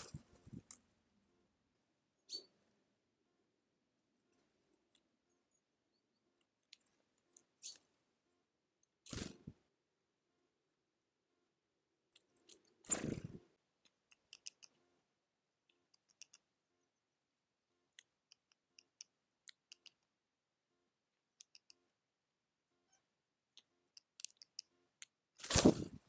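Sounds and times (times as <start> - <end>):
small animals feeding clicks: 13.8 - 14.8, 15.6 - 16.5, 17.9 - 20.1, 21.4 - 21.8, 23.6 - 25.2.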